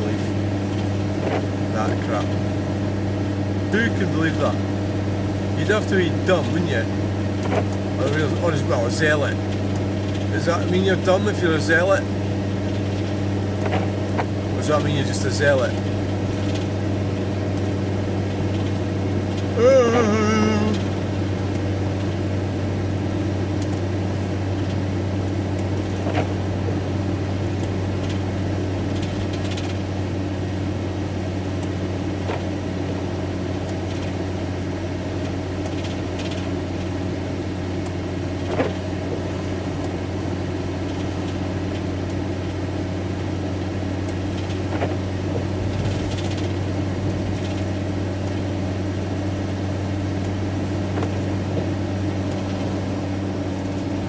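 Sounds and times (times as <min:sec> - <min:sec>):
engine and road drone: 0:00.0 - 0:54.0.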